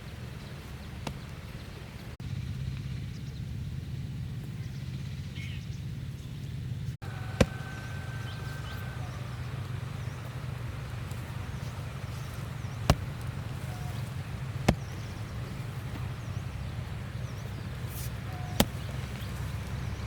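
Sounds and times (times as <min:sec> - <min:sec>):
hoe striking soil: 0:11.6 - 0:19.4.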